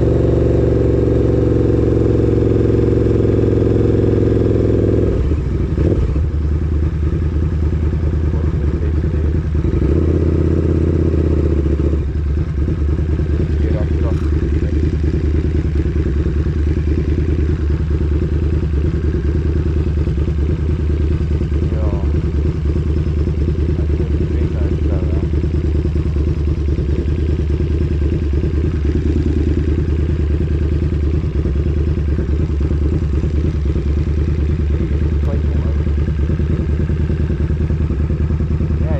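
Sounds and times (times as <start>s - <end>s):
motorcycle engine lumpy idle: 0.0s - 38.9s.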